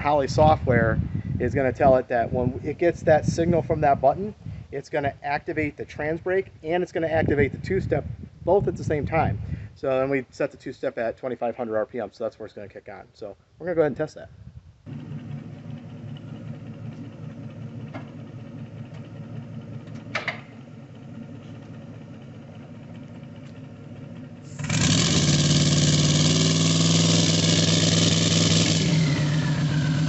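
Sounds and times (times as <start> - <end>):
car engine idling: 14.9 - 30.0
engine held on rev limiter: 14.9 - 30.0.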